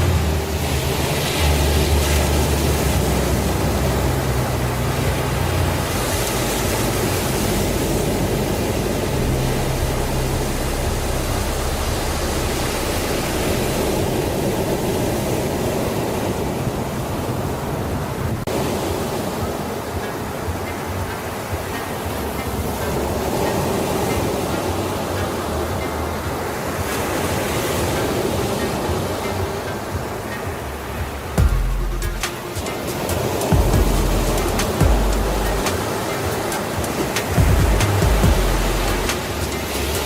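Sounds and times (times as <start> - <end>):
low sustained drone: 0.0 - 17.2, 28.0 - 40.0
steady rushing noise: 0.0 - 40.0.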